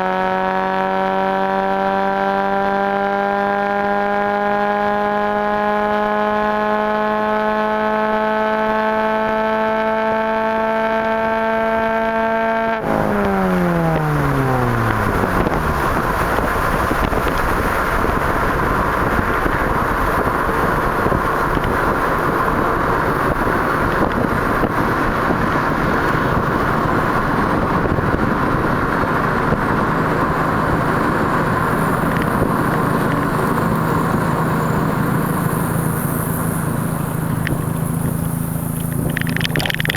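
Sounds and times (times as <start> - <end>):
car engine revving: 0.0 - 39.9
rough exhaust rush: 10.5 - 39.9.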